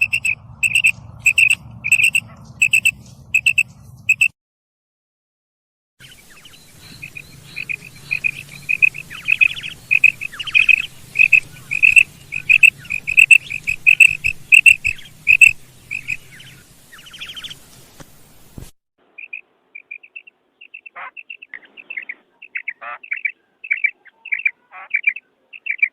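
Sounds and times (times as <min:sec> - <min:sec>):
quail chirping: 0:00.0 - 0:04.3, 0:06.0 - 0:17.8, 0:19.2 - 0:25.9
harsh rattling trills: 0:07.0 - 0:16.2.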